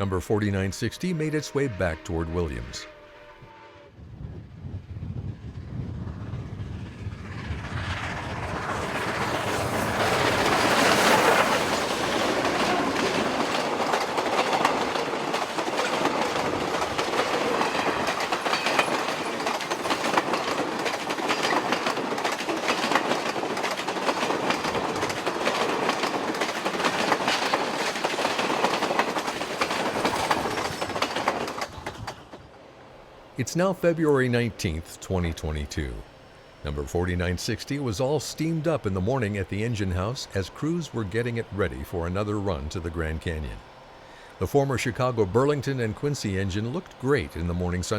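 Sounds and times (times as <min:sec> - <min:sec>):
steam train passing: 0:00.0 - 0:47.9
wheels clacking over rail: 0:09.0 - 0:32.5.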